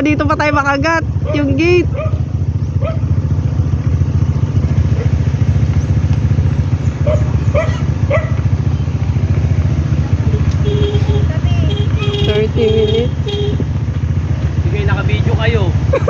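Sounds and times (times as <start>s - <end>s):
motorcycle engine running: 0.0s - 16.0s
dog barking: 1.2s - 2.2s, 2.8s - 3.1s, 7.0s - 8.4s.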